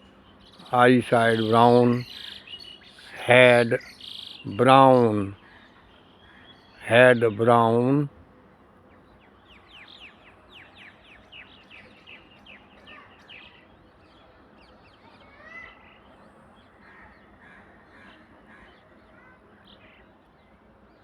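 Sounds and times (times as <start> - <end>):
birds calling: 0.0 - 8.1
low background hiss: 0.0 - 12.4.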